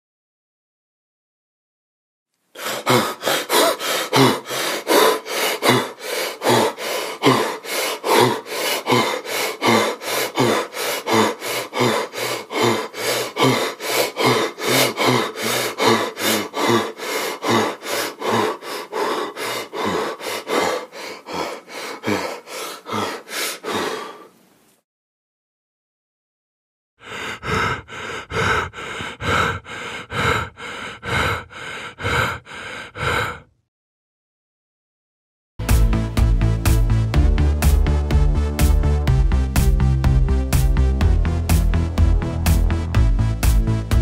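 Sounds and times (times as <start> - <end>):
person panting: 2.5 - 24.4, 27.0 - 33.6.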